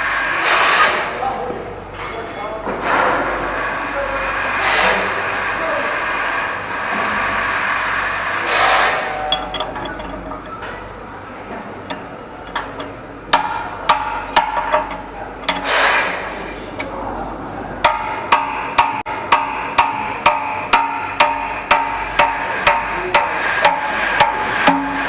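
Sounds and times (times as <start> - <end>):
woodblock-like knocking beat: 17.8 - 25.0.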